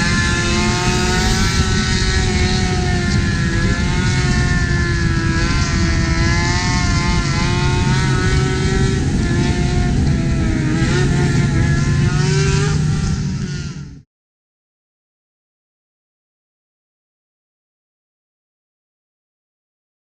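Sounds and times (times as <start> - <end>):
road noise: 0.0 - 14.0
wind noise: 0.0 - 14.0
motorcycle engines revving: 0.0 - 14.1.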